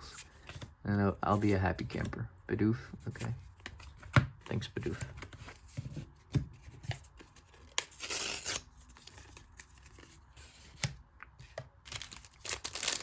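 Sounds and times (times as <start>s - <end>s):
cards tapping and rustling: 2.9s - 13.0s
trading card tearing: 7.7s - 9.9s, 11.9s - 13.0s.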